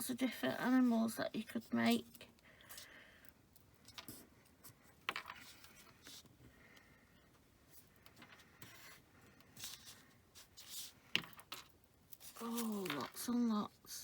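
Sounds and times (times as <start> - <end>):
paper strips rustling and crinkling: 8.0 - 14.0.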